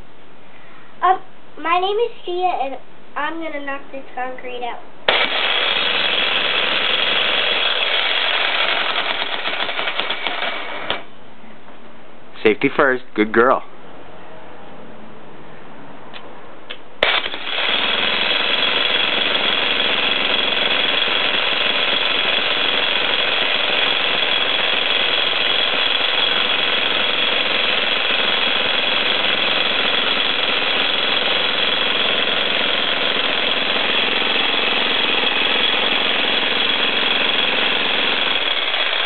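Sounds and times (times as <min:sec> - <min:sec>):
jackhammer breaking concrete: 0:05.1 - 0:11.1, 0:17.0 - 0:39.0.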